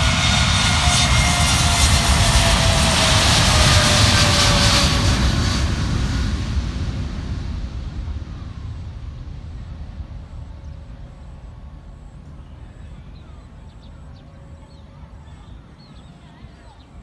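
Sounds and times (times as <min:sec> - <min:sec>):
jet engines rumbling at takeoff: 0:00.0 - 0:17.0.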